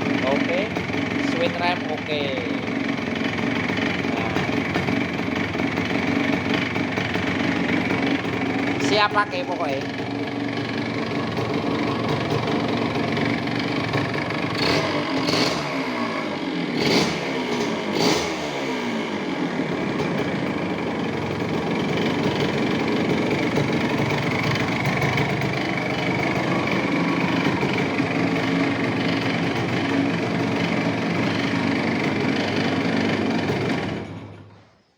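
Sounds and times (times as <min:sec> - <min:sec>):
two-stroke engine revving: 0:00.0 - 0:34.5.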